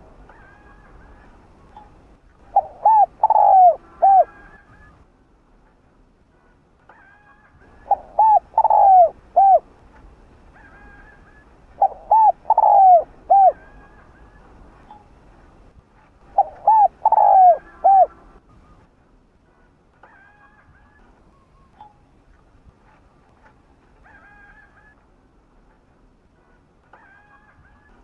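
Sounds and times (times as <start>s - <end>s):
higher bird calls: 0.3s - 5.0s, 6.9s - 9.7s, 10.5s - 15.1s, 16.3s - 18.9s
dove cooing: 2.4s - 5.0s, 7.7s - 9.7s, 10.6s - 14.6s, 16.2s - 18.4s.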